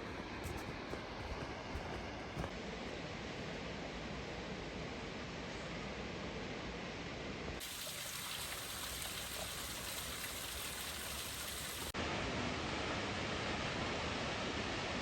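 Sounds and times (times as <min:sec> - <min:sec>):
rushing and falling water: 0:07.6 - 0:12.0.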